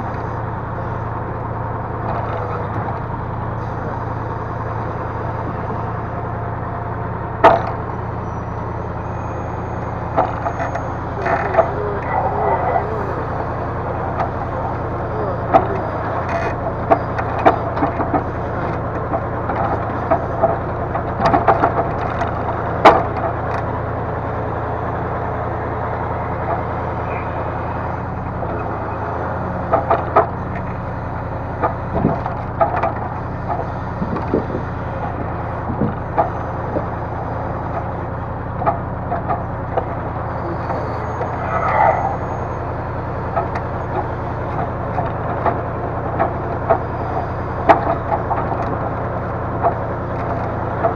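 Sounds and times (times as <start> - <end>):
crane engine droning: 0.0 - 50.9.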